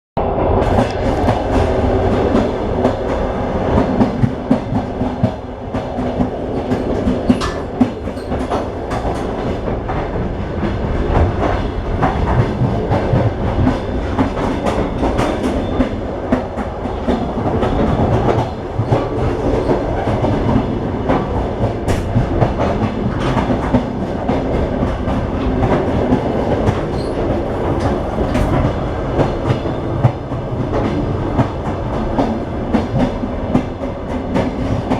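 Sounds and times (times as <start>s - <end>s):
train rumbling on rails: 0.2s - 34.9s
wheels clattering over rail joints: 6.2s - 10.1s, 17.0s - 30.2s.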